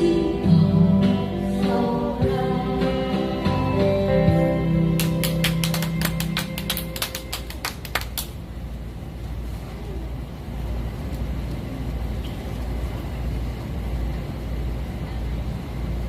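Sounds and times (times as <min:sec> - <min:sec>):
low street rumble: 0:00.0 - 0:16.0
people clapping: 0:04.9 - 0:08.4.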